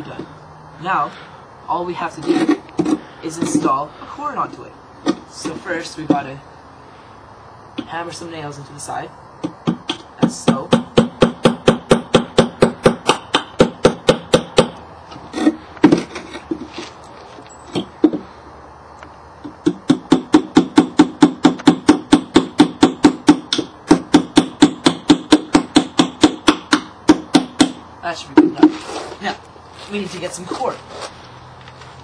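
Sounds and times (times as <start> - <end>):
scattered knocks: 9.4 - 14.8, 19.4 - 28.8
hammer driving nails: 9.4 - 16.6, 19.4 - 27.8.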